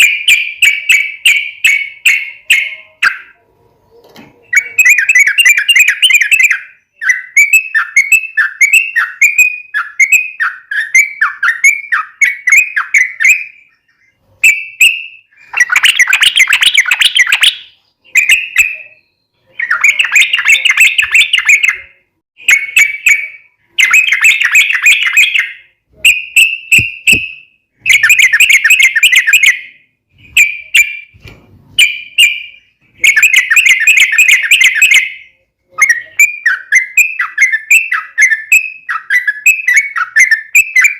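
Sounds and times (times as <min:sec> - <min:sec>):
bird chattering song: 0:00.0 - 0:31.1, 0:31.8 - 0:40.9.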